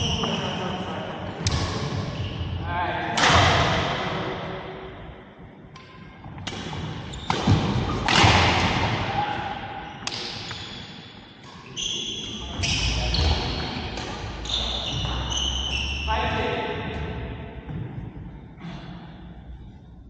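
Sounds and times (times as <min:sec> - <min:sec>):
shoes squeaking on court floor: 0:00.0 - 0:00.9, 0:01.5 - 0:02.6, 0:10.4 - 0:16.4
racket hitting shuttlecock: 0:05.8 - 0:09.0.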